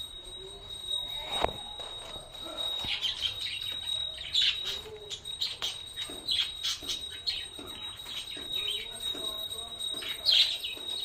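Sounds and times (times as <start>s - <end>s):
budgies chirping: 2.6s - 9.1s.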